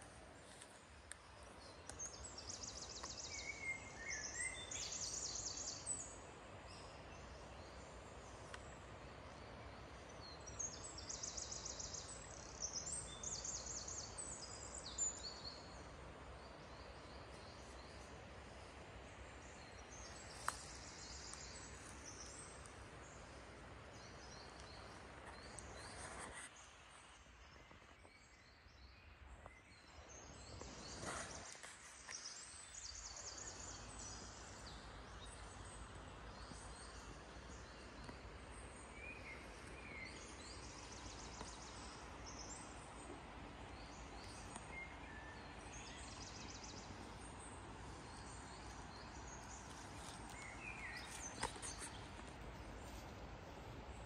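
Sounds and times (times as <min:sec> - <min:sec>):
background hiss: 0:00.0 - 0:54.0
forest birds trilling: 0:28.0 - 0:54.0.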